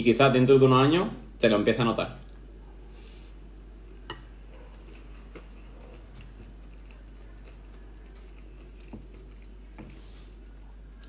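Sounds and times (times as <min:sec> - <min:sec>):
steady low hum: 0:00.0 - 0:11.0
quiet chewing: 0:02.2 - 0:11.0.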